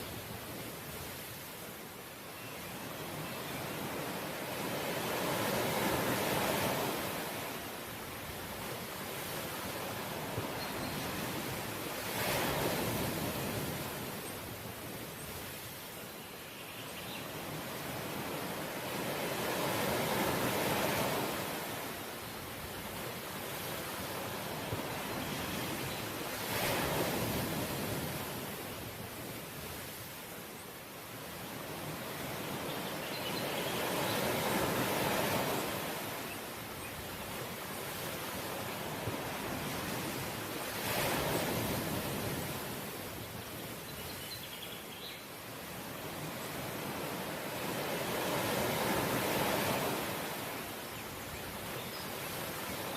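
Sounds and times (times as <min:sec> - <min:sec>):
ocean surf washing ashore: 0:02.8 - 0:16.0, 0:17.3 - 0:43.9, 0:45.3 - 0:52.9.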